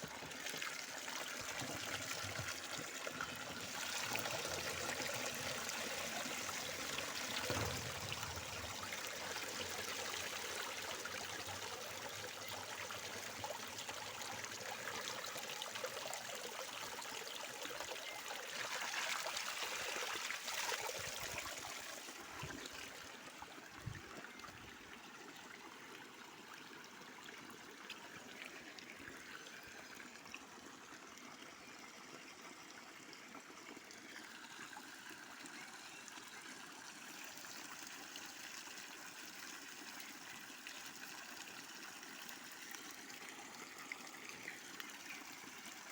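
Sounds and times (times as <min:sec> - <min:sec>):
spring water trickling: 0:00.0 - 0:26.3.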